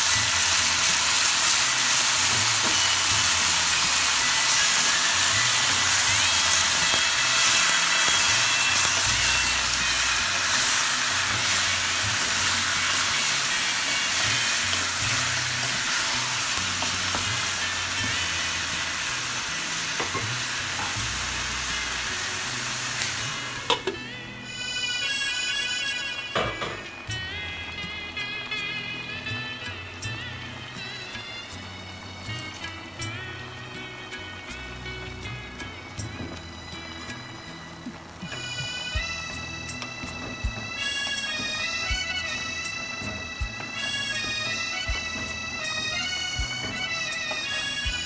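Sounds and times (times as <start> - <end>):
wooden spoon stirring in pot: 0.0 - 24.0, 34.4 - 48.0
meat and onions sizzling in oil: 0.0 - 24.9, 26.5 - 48.0.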